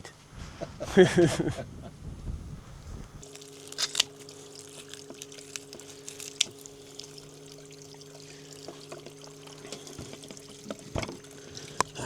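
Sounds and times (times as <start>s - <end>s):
electric boat motor humming: 2.2s - 12.0s
water trickling and splashing: 2.5s - 12.0s.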